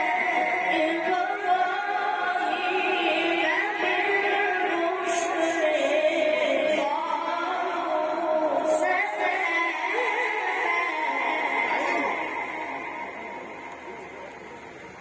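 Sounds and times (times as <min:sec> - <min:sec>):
man chanting melodically: 0:11.1 - 0:12.9.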